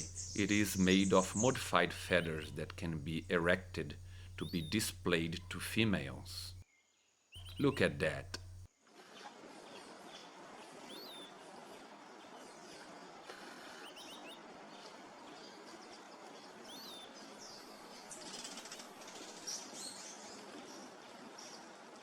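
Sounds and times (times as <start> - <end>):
high bird chirps: 0.0 - 6.6, 7.4 - 8.7
high buzzing: 0.0 - 6.6
forest ambience hiss: 0.0 - 6.7, 7.4 - 8.7.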